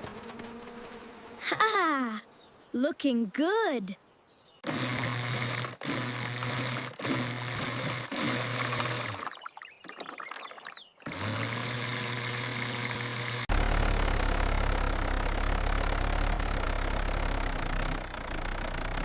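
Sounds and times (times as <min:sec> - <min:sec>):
small engine humming: 0:04.6 - 0:09.4, 0:11.0 - 0:19.0
water splashes: 0:09.1 - 0:10.9.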